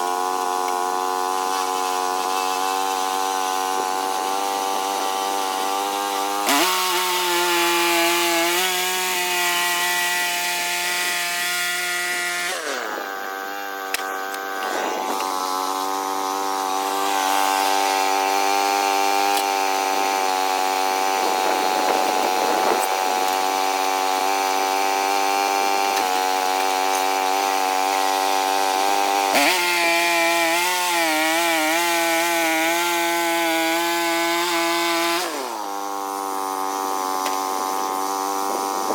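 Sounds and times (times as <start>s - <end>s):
sawing wood: 0.0s - 38.9s
sawmill engine running: 0.0s - 38.9s.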